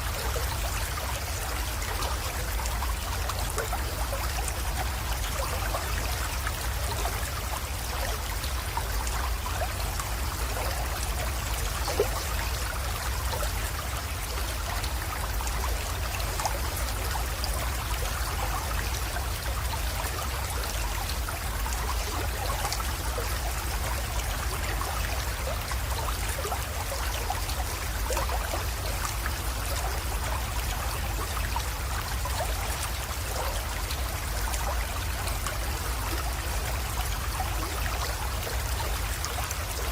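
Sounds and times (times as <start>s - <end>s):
creek trickling: 0.0s - 39.9s.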